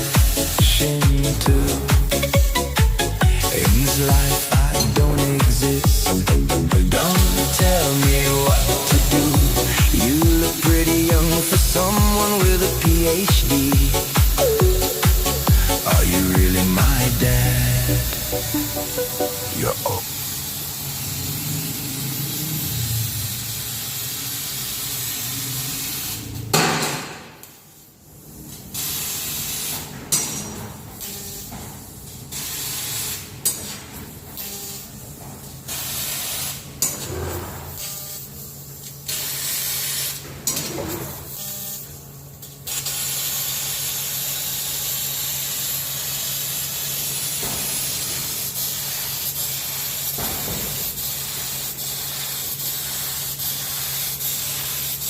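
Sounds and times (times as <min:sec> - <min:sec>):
hiss of gas at cutting head: 0:42.7 - 0:55.0.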